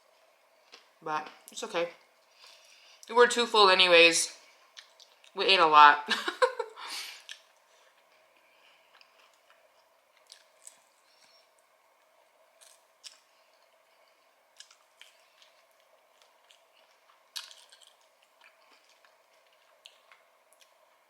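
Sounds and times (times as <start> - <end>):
faint steady hum: 0.0 - 21.0
chewing food: 4.7 - 5.4, 7.2 - 11.7, 12.6 - 21.0.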